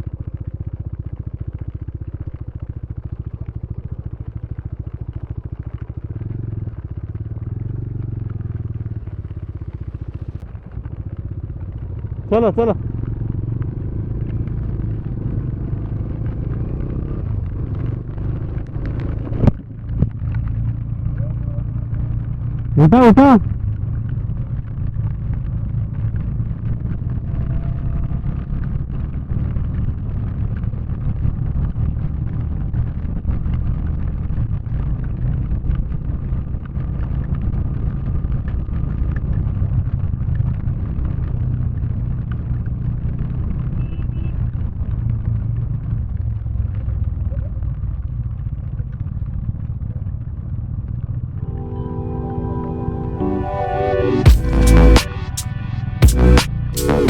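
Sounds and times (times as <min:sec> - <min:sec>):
motorcycle engine rumble: 0:00.0 - 0:57.0.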